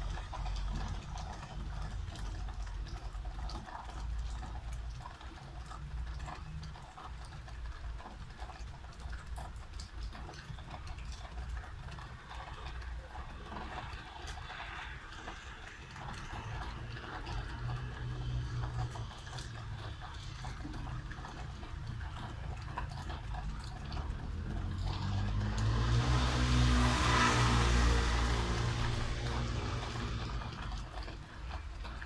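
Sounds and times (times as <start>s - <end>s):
drips and ticks: 0.0s - 32.0s
rain falling: 0.0s - 32.0s
car tyres hissing on wet street: 13.8s - 18.9s, 23.8s - 31.3s
low vehicle hum: 16.0s - 32.0s.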